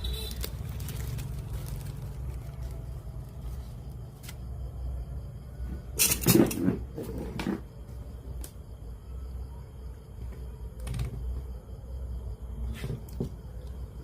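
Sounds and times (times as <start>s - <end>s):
clatter of hard objects handled: 6.0s - 7.6s.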